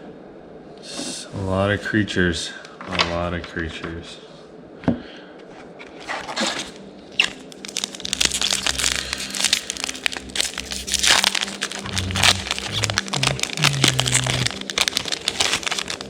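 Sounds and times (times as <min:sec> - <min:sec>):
cards and packaging rustling: 0:05.9 - 0:16.0.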